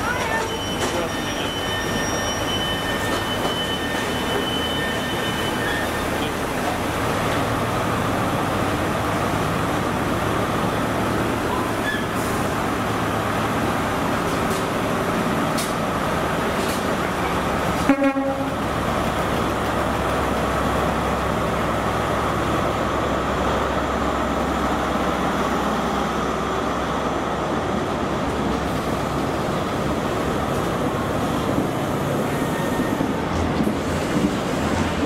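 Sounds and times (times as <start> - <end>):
train running with low hum: 0.0 - 35.0
short horn toot: 17.8 - 18.6.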